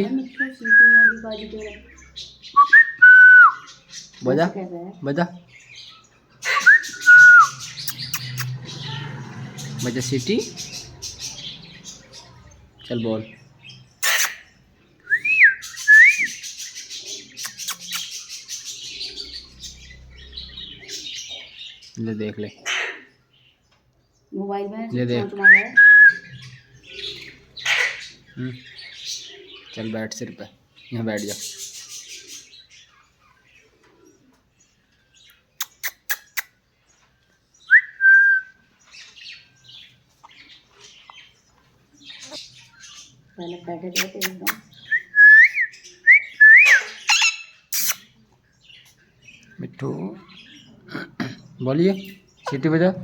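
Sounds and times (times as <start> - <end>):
parrot whistling: 6.4 - 8.5, 15.1 - 16.4, 44.9 - 48.0
parrot chirps and clicks: 7.8 - 8.6, 14.0 - 14.5, 17.4 - 18.3, 35.3 - 36.6, 43.9 - 44.8, 46.7 - 48.1
soft parrot chirps: 14.0 - 19.8, 35.3 - 36.6, 43.9 - 49.5.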